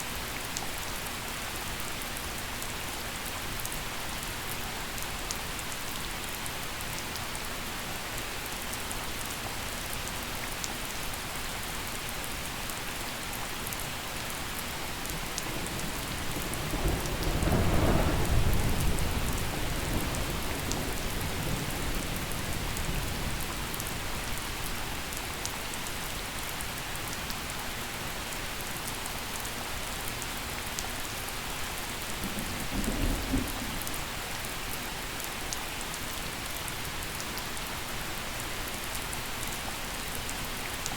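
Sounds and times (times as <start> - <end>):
gentle rain falling: 0.0 - 40.9
thunder rumbling: 15.1 - 24.3, 32.1 - 34.0.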